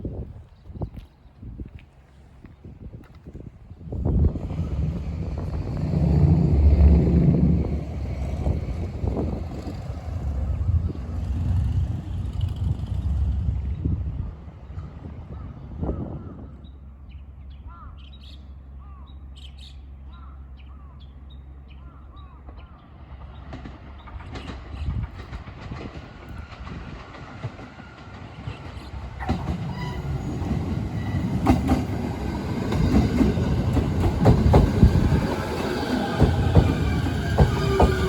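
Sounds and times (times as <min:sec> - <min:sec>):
train rumbling: 0:00.0 - 0:38.0
wheels clacking over rail joints: 0:22.4 - 0:38.0
train wheels screeching: 0:23.8 - 0:38.0.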